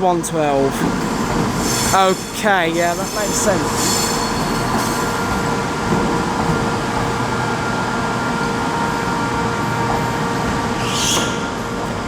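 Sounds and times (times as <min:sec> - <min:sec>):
train hum and rumble: 0:00.0 - 0:12.0.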